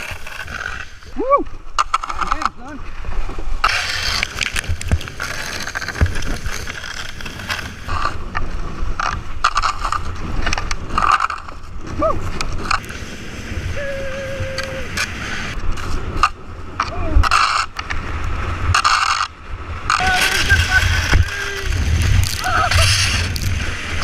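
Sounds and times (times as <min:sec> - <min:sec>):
knocks and scrapes of hull: 0:00.0 - 0:13.0, 0:18.6 - 0:24.0
person whooping: 0:01.1 - 0:01.5, 0:11.9 - 0:12.2, 0:13.7 - 0:15.0, 0:20.0 - 0:23.1
wind buffeting microphone: 0:05.9 - 0:24.0.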